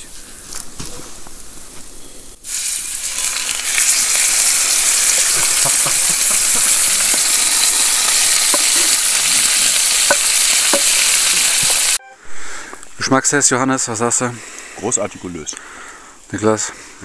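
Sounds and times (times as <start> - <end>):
steak sizzling: 2.4 - 12.0
fire pops and crackles: 2.5 - 11.9.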